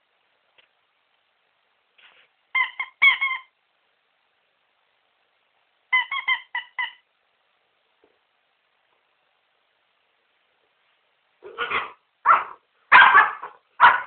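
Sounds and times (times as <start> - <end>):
squeaky dog toy squeaking: 2.5 - 3.5, 5.9 - 7.0.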